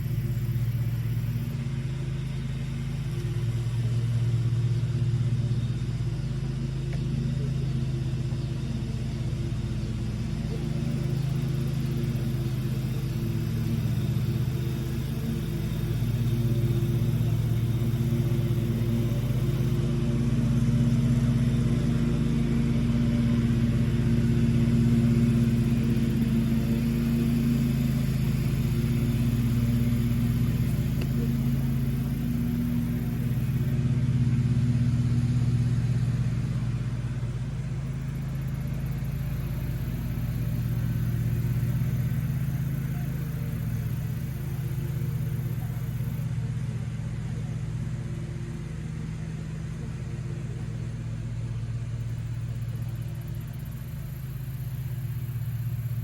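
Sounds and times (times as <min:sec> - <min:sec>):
engine humming: 0:00.0 - 0:56.0.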